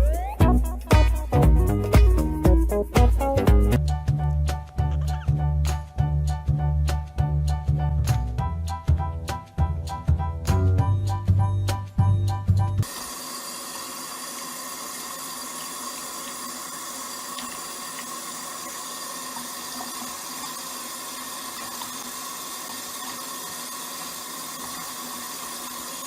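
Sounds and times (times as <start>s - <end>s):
running water: 12.8s - 26.0s.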